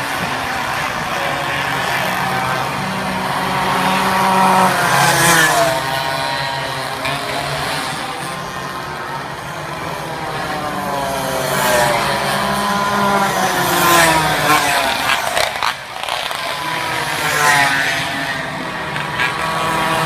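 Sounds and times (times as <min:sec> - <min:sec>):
minibike engines revving: 0:00.0 - 0:20.0
minibike passing close: 0:00.0 - 0:20.0.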